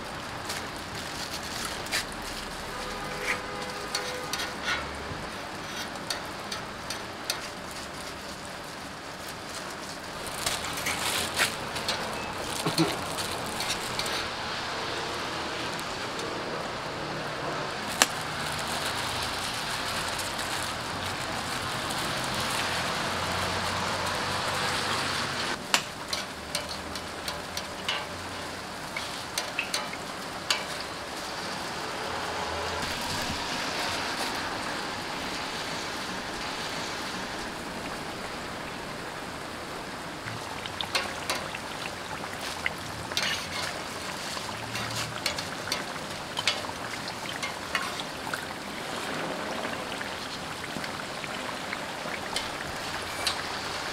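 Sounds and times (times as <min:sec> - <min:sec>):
pancakes sizzling in oil: 0:00.0 - 0:53.9.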